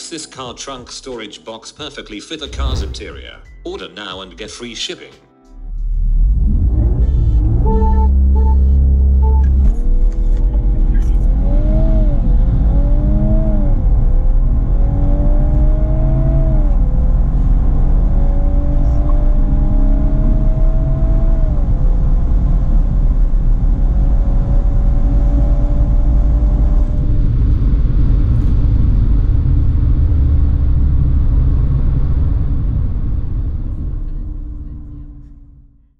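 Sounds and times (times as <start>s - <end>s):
car engine accelerating hard: 5.8s - 35.8s
road noise: 5.8s - 35.8s.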